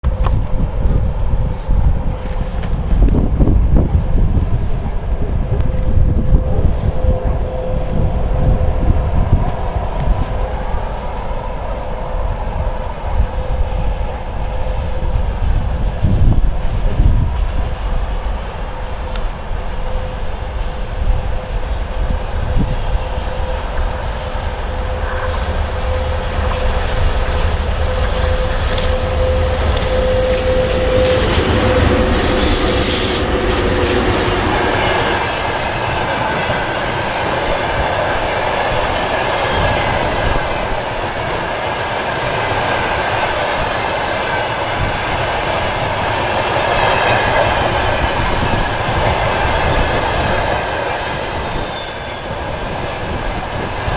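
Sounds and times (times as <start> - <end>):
electric locomotive hum: 0.0 - 53.9
train wheels rolling on rails: 0.0 - 53.9
high wheel squeal: 18.7 - 37.8, 45.3 - 53.9.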